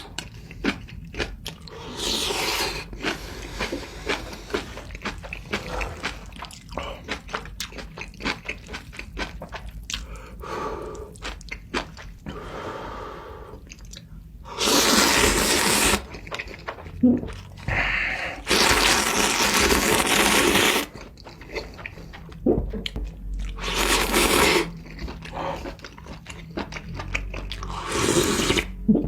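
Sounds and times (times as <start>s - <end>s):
crunching and chewing: 0.0s - 12.4s, 15.4s - 28.8s
breathy slurping: 27.5s - 29.0s.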